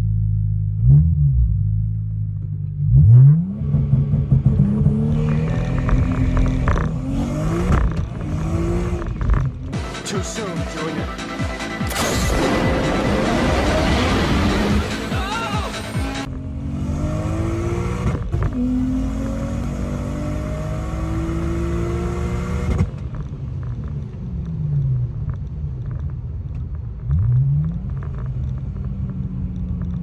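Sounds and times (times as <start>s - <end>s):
lower engine noise: 0.0s - 30.0s
car engine revving at full throttle: 2.7s - 24.3s.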